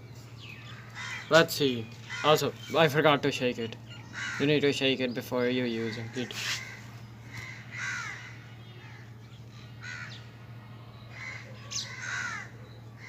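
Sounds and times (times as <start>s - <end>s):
steady low hum: 0.0s - 13.0s
crow cawing: 0.6s - 2.8s, 3.8s - 4.8s, 5.7s - 10.4s, 11.0s - 13.0s.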